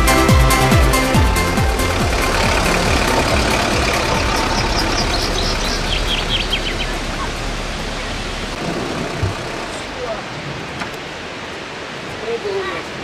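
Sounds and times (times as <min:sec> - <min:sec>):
electronic music: 0:00.0 - 0:08.4
waterfall roaring: 0:00.8 - 0:13.0.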